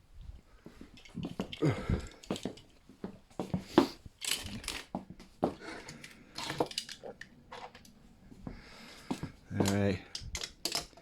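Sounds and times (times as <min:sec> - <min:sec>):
toy trucks clicking and clattering: 0:04.2 - 0:04.9, 0:05.8 - 0:08.0, 0:09.6 - 0:11.0.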